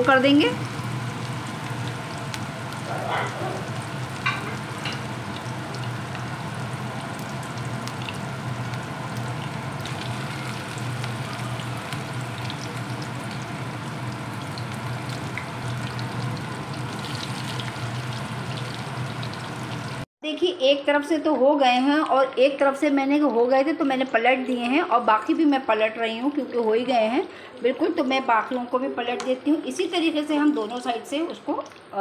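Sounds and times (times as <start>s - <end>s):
meat sizzling in oil: 0.0s - 20.0s.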